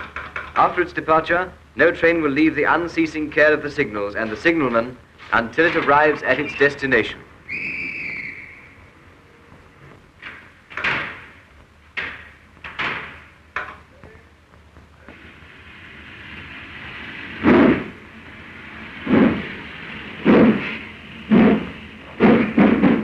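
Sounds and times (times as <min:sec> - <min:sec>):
steam locomotive exhaust beats: 0:00.0 - 0:23.0
steam hissing: 0:00.6 - 0:23.0
carriage doors slamming: 0:10.2 - 0:11.4.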